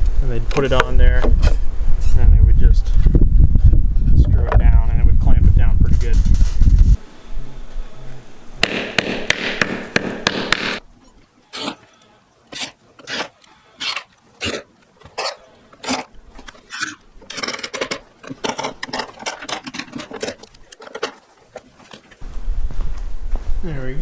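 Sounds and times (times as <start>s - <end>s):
hand tools scraping wood: 11.5s - 11.9s, 12.5s - 22.2s.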